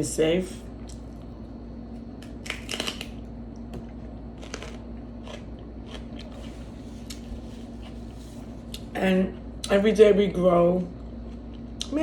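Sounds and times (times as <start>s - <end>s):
steady low hum: 0.0s - 12.0s
person chewing crunchy food: 2.2s - 9.8s, 11.0s - 12.0s.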